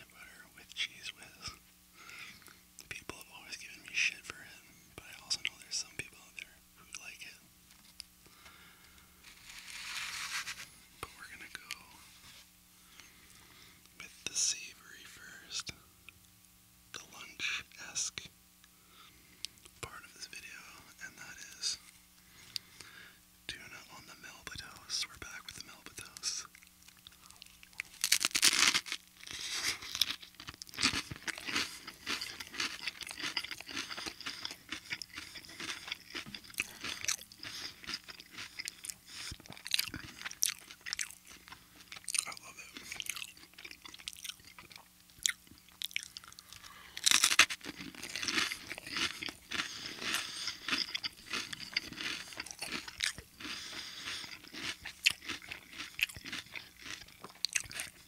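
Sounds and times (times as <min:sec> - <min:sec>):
crunching toast bites: 0:07.9 - 0:10.7, 0:26.0 - 0:58.0
crackly chewing: 0:19.4 - 0:58.0.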